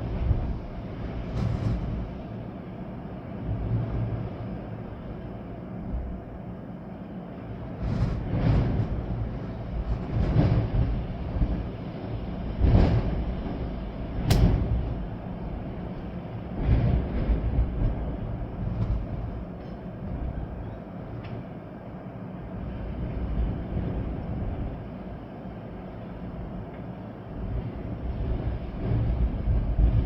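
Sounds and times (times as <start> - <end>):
rain: 0.0 - 30.0
storm wind gusting: 7.4 - 20.6
sharp crack: 14.3 - 14.8.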